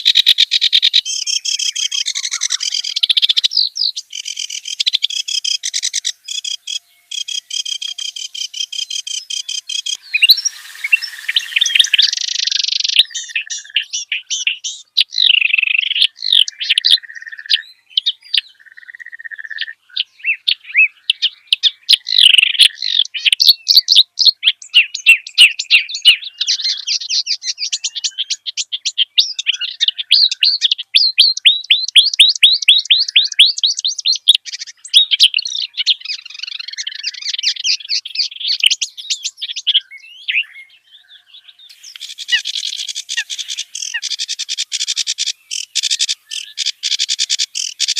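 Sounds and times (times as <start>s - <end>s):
reed warbler singing: 0.0s - 47.9s
steady insect hiss: 0.5s - 13.2s, 41.7s - 47.9s.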